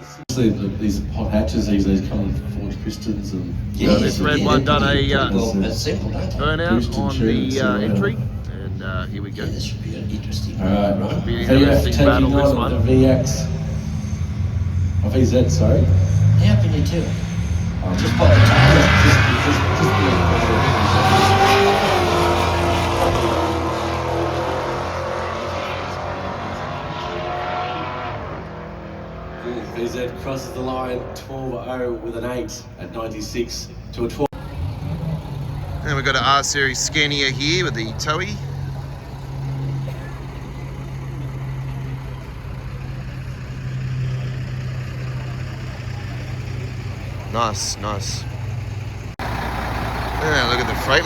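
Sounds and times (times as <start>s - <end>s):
truck diesel engine idling: 0.0s - 20.9s, 33.8s - 51.0s
drag racing cars at full throttle: 0.0s - 51.0s.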